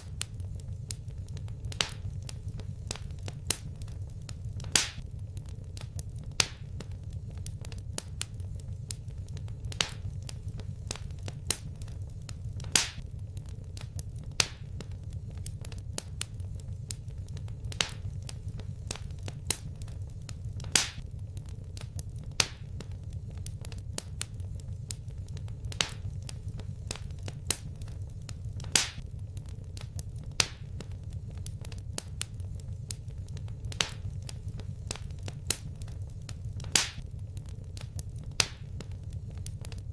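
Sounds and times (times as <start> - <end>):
low steady rumble: 0.0 - 39.9
sharp fire pops: 0.0 - 39.9
wood fire crackling: 0.0 - 39.9.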